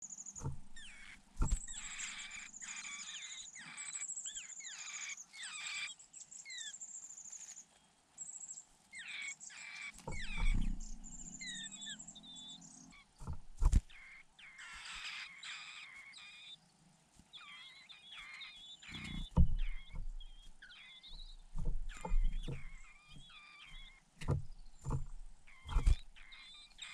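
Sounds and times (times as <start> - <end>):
nestling birds begging calls: 0.1 - 7.5, 9.0 - 16.6, 17.3 - 26.9
sharp low thumps: 0.4 - 2.4, 10.1 - 11.6, 13.2 - 14.0, 19.0 - 26.5.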